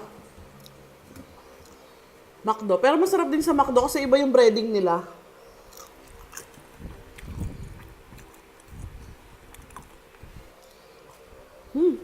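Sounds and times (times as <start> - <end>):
person chewing food: 5.6 - 11.3.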